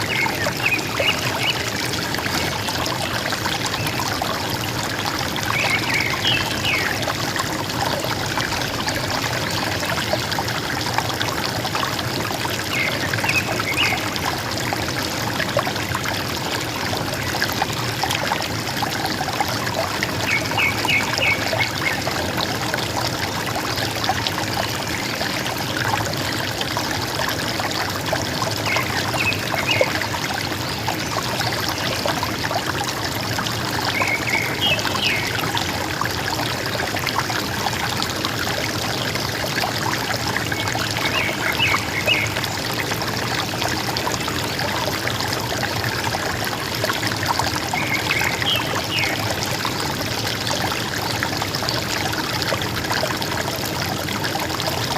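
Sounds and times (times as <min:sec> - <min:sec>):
river water flowing: 0:00.0 - 0:54.9.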